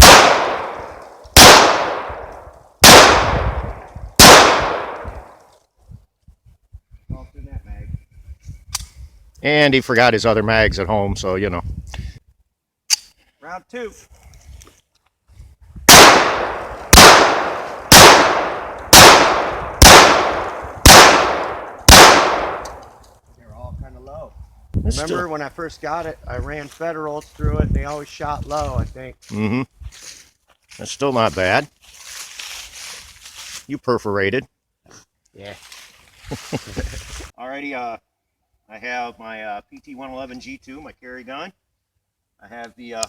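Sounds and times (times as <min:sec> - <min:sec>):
pistol shots: 0:00.0 - 0:05.4, 0:15.9 - 0:22.9.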